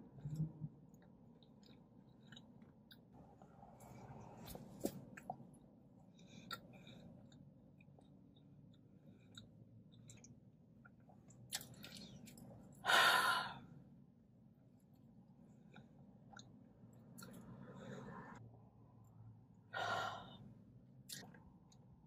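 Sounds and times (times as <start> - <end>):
person chewing food: 0.1 - 12.8, 14.9 - 17.6, 21.1 - 22.0.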